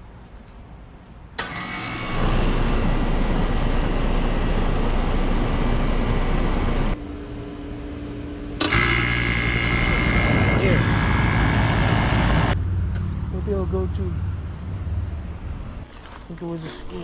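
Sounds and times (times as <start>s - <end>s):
rushing fan noise: 1.4s - 13.3s
air conditioner compressor humming: 2.8s - 12.6s.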